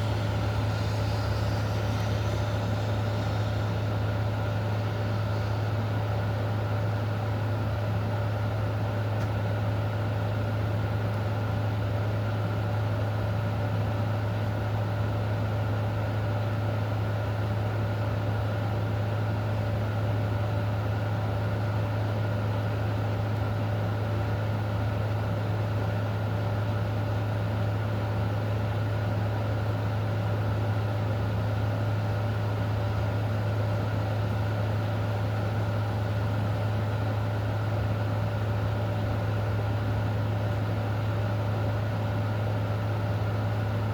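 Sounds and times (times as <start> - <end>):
low mechanical hum: 0.0 - 43.9.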